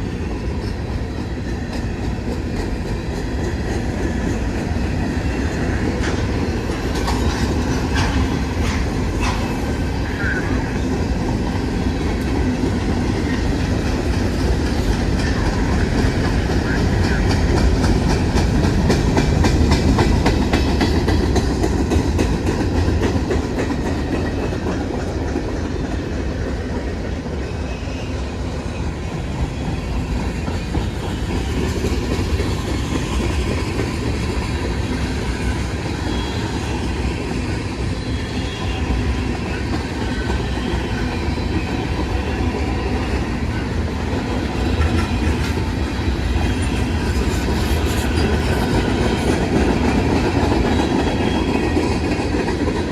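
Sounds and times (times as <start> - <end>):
train wheels clattering over rails: 0.0 - 52.9.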